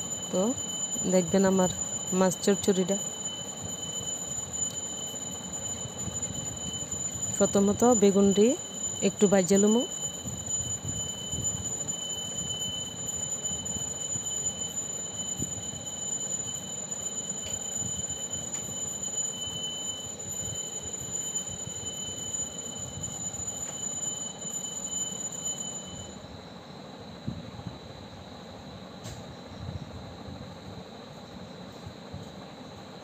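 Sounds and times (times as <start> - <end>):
high-pitched whine: 0.0 - 30.6.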